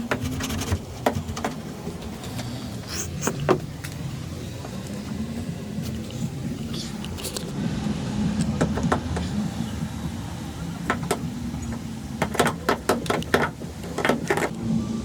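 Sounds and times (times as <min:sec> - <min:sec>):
sharp clicks and knocks: 0:00.0 - 0:02.5, 0:10.8 - 0:14.6
low mechanical hum: 0:00.0 - 0:15.0.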